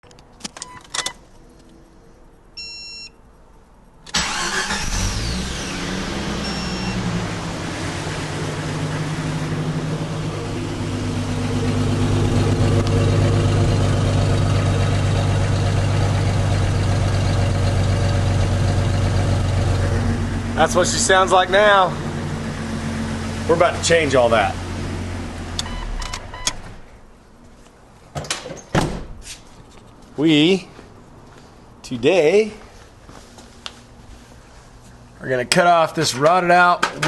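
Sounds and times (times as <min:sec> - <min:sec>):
short beep: 0:02.6 - 0:03.2, 0:06.4 - 0:07.0, 0:25.6 - 0:26.6
car engine starting and idling: 0:03.3 - 0:27.3.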